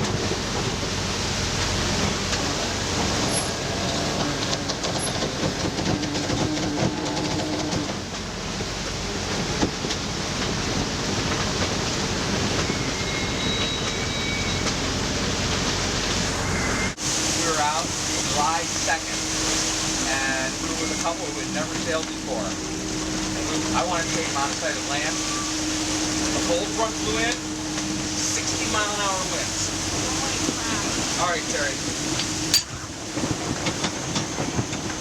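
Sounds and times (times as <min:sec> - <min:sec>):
water rushing: 0:17.0 - 0:33.7.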